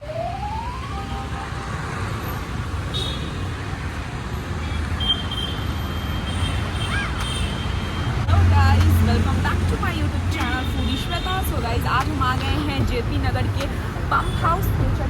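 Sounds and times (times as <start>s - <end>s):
road traffic rumbling: 0.0s - 15.0s.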